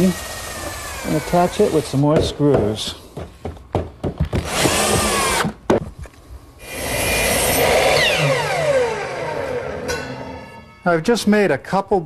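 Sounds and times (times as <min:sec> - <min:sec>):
sharp knocks: 0:02.1 - 0:05.9
power drill whining: 0:06.6 - 0:09.8.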